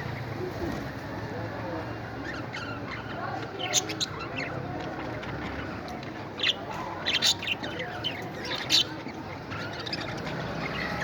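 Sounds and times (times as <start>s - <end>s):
parrots chirping: 2.2s - 11.0s.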